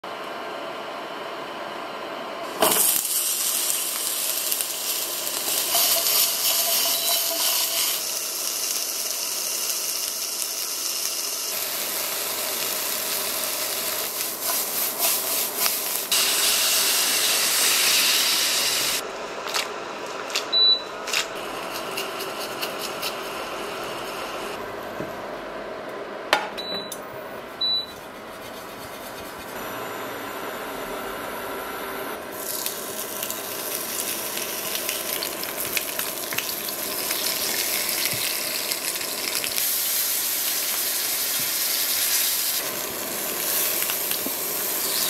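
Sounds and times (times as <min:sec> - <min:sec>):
vegetables sizzling in frying pan: 0:02.5 - 0:19.0, 0:32.3 - 0:45.0.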